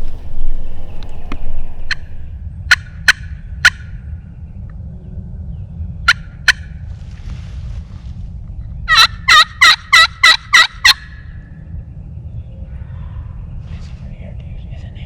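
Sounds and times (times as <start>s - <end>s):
turkey clucks: 0.0s - 2.3s, 8.9s - 11.0s
turkey yelps: 8.9s - 11.0s.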